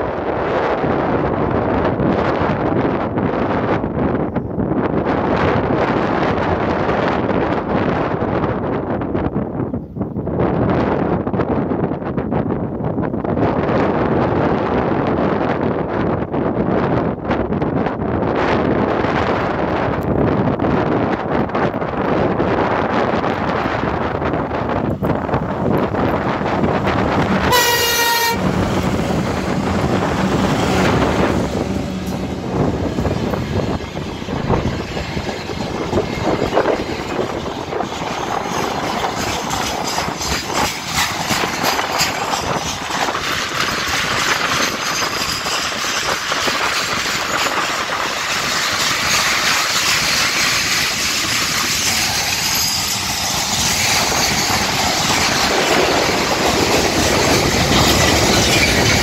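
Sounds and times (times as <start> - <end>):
locomotive engine hum: 22.8 - 59.0
locomotive horn blast: 27.4 - 28.8
wagon wheels clicking over rail joints: 31.6 - 59.0.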